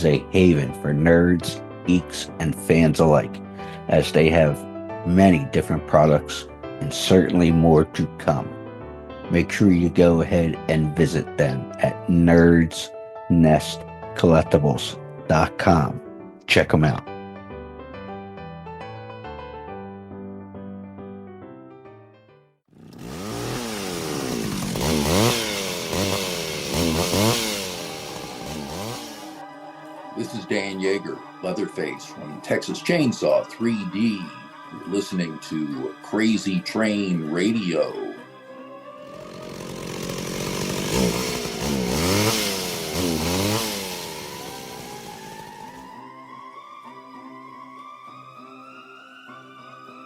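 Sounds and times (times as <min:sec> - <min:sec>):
chainsaw revving: 0:22.7 - 0:29.4, 0:39.0 - 0:45.9.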